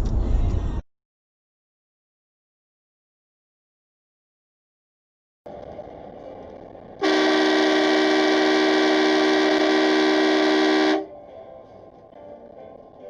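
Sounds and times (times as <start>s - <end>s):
low road noise: 0.0s - 0.9s, 5.5s - 13.0s
car horn blast: 7.0s - 11.1s.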